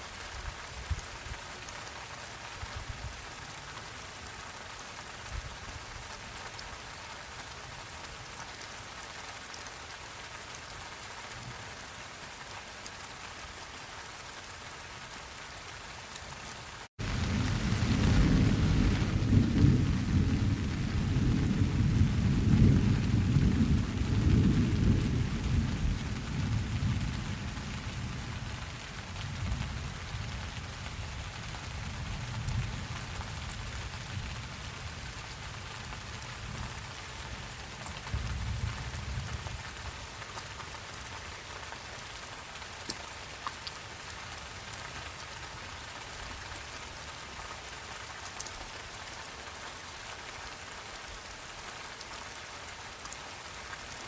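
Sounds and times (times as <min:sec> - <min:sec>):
steady rain: 0:00.0 - 0:54.0
rolling thunder: 0:17.0 - 0:28.2.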